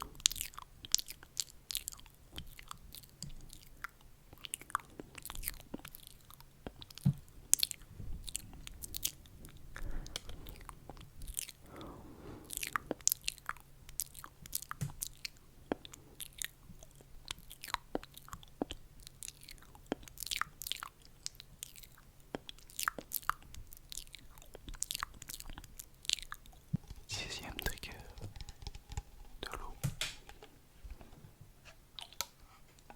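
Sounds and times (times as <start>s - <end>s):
wet mouth clicks and smacks: 16.8s - 30.6s.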